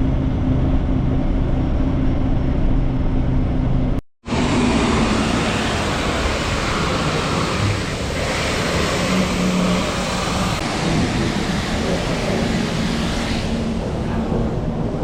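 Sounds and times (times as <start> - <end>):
faint engine hum: 0.0 - 15.0
water spraying from a hose: 4.8 - 13.8.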